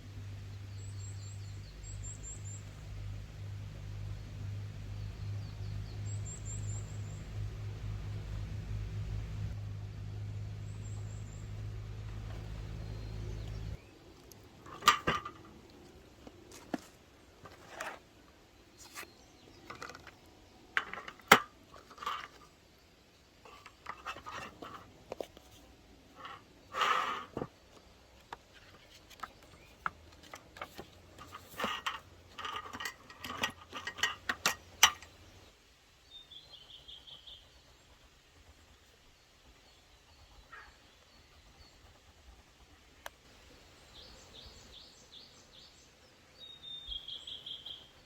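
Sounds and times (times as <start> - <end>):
bird chirping: 0.4 - 2.9, 4.8 - 7.5, 10.3 - 14.0, 28.2 - 38.0, 43.6 - 48.0
cookware and utensils clattering: 31.2 - 35.1.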